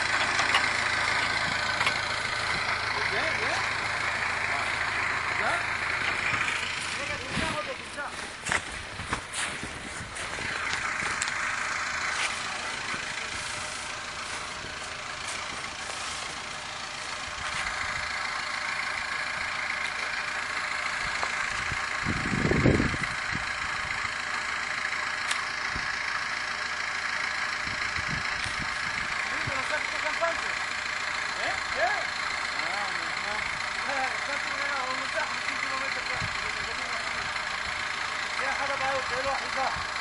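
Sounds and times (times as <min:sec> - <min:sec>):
low rumble: 0:00.0 - 0:24.2
vehicle engine idling: 0:00.0 - 0:40.0.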